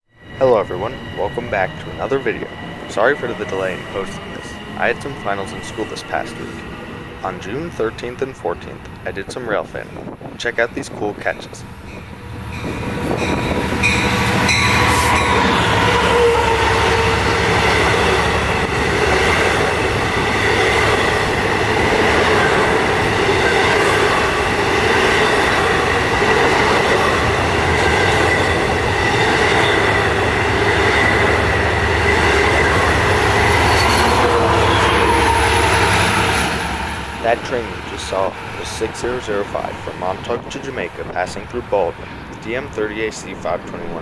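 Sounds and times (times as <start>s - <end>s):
wheel-on-rail noise with ringing: 0.1s - 44.0s
diesel engine drone: 29.8s - 42.1s.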